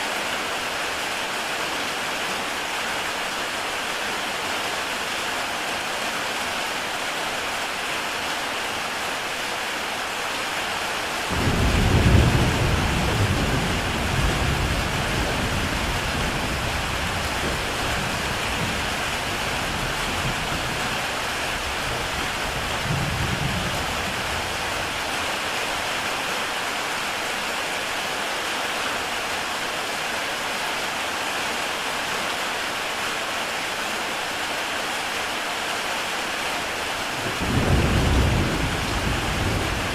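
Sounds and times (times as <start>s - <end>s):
heavy rain on a tile roof: 0.0s - 39.9s
rumble of thunder: 11.3s - 20.9s, 21.7s - 25.0s, 37.2s - 39.9s.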